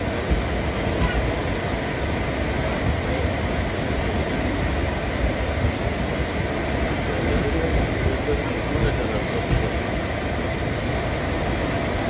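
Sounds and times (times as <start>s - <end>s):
train wheels on rails: 0.0s - 11.3s.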